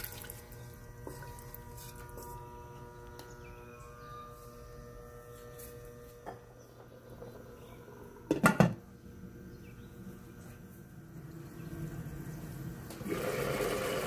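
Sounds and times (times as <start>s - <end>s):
faint steady hum: 0.0s - 14.0s
kitchenware knocking together: 8.3s - 8.8s.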